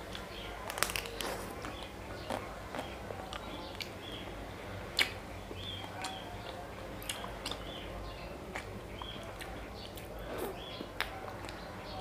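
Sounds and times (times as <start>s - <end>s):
chewing ice-cream bar: 0.0s - 4.2s, 5.0s - 12.0s
mouth clicks and smacks: 5.0s - 5.2s, 5.8s - 7.7s, 8.5s - 11.6s.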